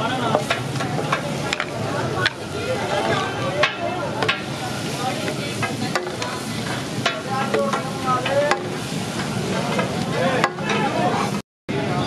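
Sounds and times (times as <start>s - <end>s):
chicken sizzling on griddle: 0.0s - 12.0s
sharp clanks on griddle: 0.2s - 2.4s, 3.6s - 4.6s, 5.2s - 10.9s.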